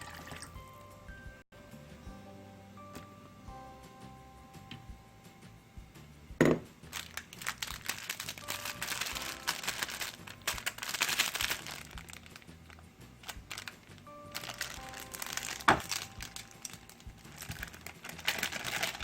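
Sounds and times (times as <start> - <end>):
wet chewing: 7.0 - 19.0.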